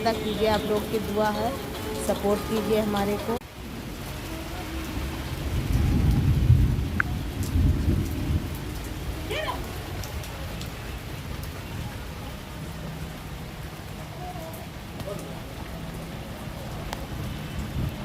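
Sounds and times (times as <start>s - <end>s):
heavy rain falling: 0.0s - 18.0s
thunder rumble: 3.4s - 14.0s.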